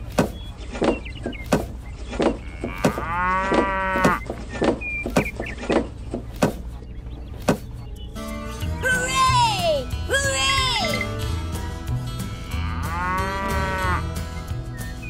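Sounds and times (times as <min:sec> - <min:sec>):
cow mooing: 0:02.4 - 0:04.2, 0:08.2 - 0:09.0, 0:10.8 - 0:11.6, 0:12.4 - 0:14.2.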